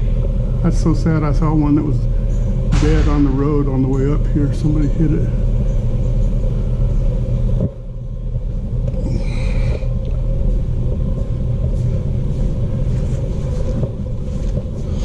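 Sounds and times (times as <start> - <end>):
low rumble with hum: 0.0 - 15.0.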